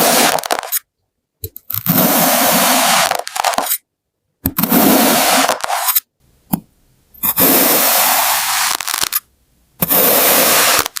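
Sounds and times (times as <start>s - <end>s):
blade slicing sand: 0.0s - 0.8s, 9.8s - 11.0s.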